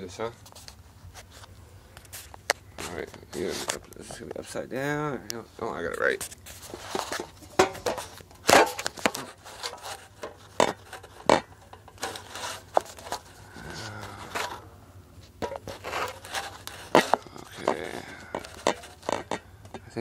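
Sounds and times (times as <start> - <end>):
scraping and rubbing: 0.4 - 19.5
knocks and clicks of handling: 15.2 - 19.9.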